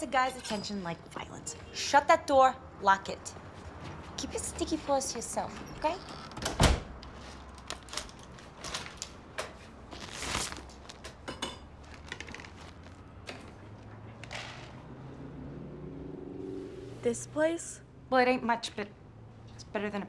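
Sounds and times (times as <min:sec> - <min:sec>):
door shutting with thud: 0:06.2 - 0:07.0.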